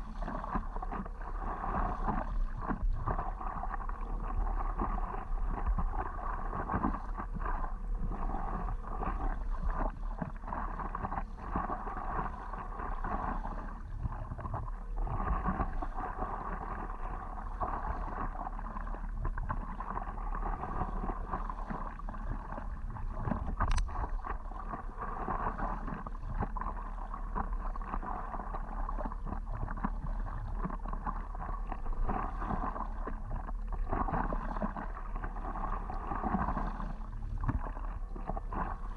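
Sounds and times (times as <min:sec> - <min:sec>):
water sloshing around paddleboard: 0:00.0 - 0:38.9
sharp click: 0:23.6 - 0:23.9.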